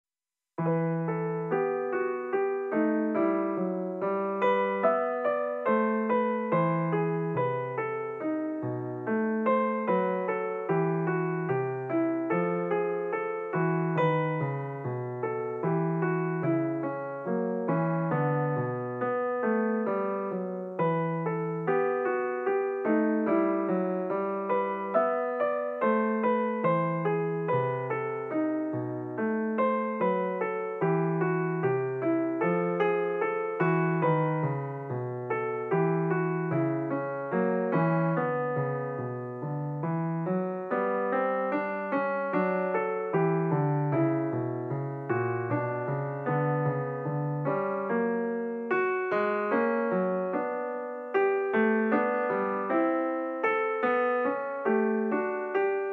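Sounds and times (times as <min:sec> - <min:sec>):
piano music: 0:00.6 - 0:55.9.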